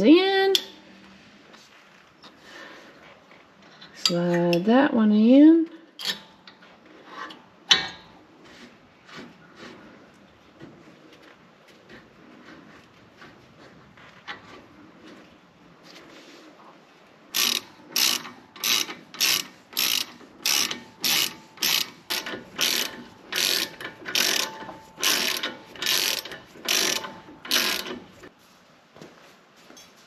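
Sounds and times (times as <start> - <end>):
ratchet wrench clicking: 17.4 - 28.2.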